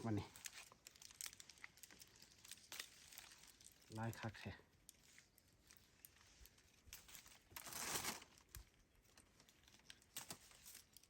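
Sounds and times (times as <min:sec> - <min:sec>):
faint crinkling rustle: 0:00.0 - 0:11.0.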